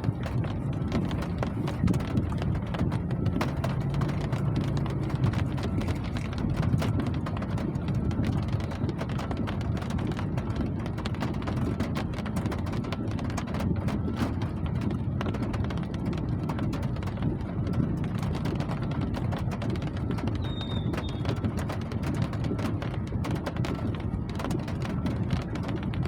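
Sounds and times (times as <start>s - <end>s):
steady rain falling: 11.0s - 25.8s.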